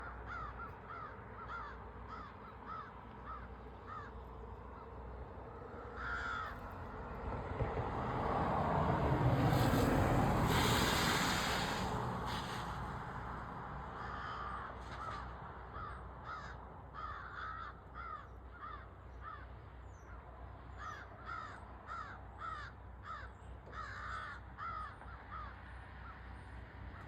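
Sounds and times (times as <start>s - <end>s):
crow cawing: 0.0s - 6.8s, 14.0s - 19.6s, 20.7s - 26.2s
broad rushing noise: 8.6s - 13.4s.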